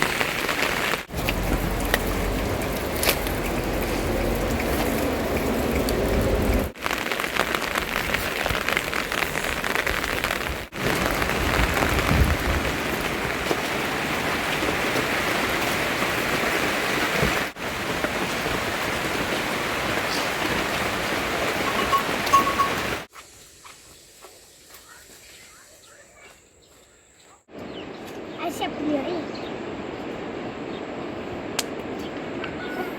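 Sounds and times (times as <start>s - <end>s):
steady rain falling: 0.0s - 23.1s.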